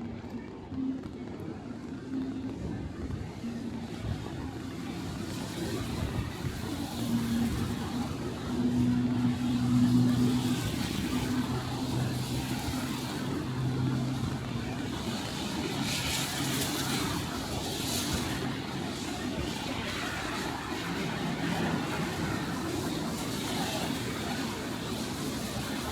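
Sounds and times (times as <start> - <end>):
vehicle engine humming: 0.0 - 18.8
street noise: 0.0 - 25.9.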